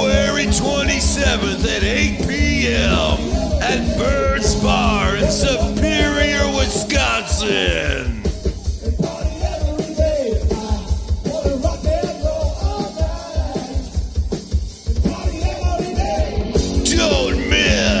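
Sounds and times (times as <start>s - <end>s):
rock song with singing: 0.0s - 18.0s.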